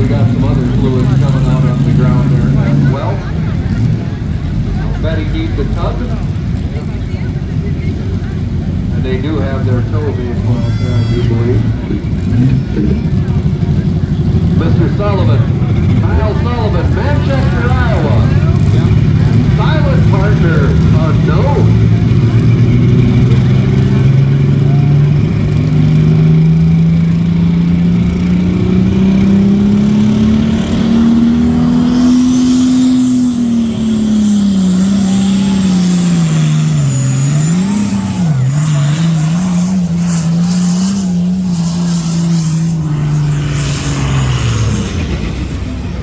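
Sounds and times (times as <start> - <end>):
tractor engine running hard: 0.0 - 46.0.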